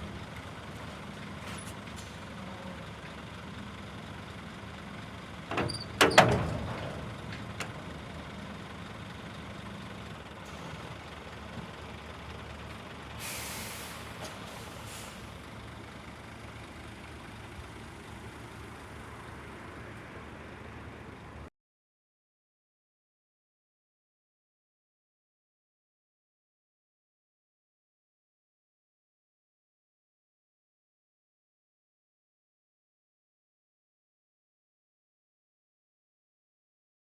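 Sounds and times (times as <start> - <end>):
diesel truck engine idling: 0.0 - 21.5
air hiss: 13.2 - 15.3.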